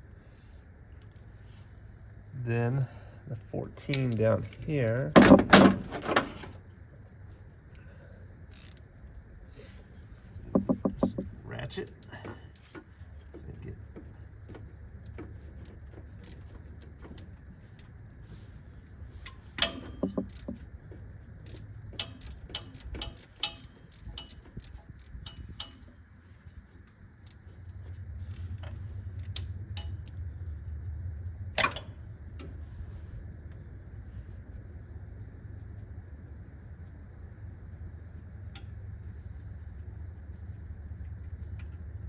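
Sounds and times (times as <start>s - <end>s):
hand ratchet working a bolt: 8.5s - 8.8s, 10.4s - 17.9s, 19.2s - 20.7s, 21.4s - 26.0s
metal tools clinking: 19.2s - 20.6s, 21.5s - 25.9s.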